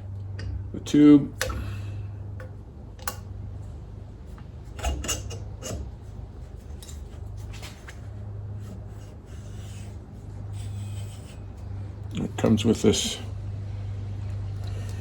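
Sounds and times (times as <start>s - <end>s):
tool rubbing and scraping metal: 4.7s - 8.0s, 8.6s - 11.6s.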